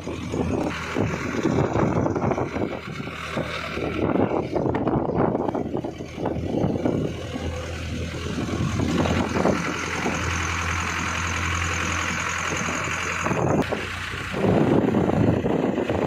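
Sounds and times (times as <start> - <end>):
road and wind noise: 0.0 - 16.0
vehicle engine humming: 0.0 - 16.0.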